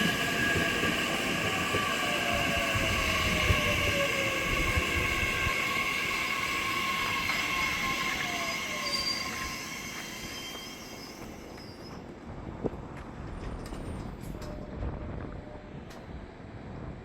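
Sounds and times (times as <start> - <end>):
train passing: 0.0 - 17.0
high-pitched wheel squeal: 5.7 - 12.0.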